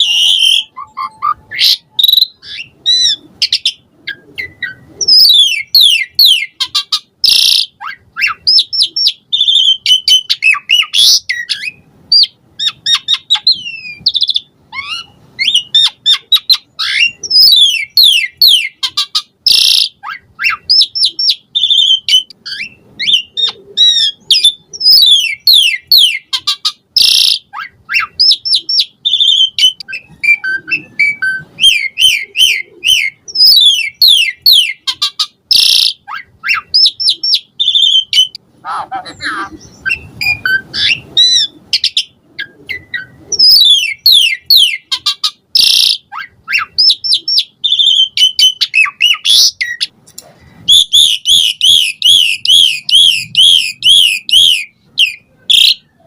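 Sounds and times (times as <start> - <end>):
starling whistling song: 0.0 - 6.6, 7.2 - 38.4, 39.6 - 49.9, 50.7 - 56.0.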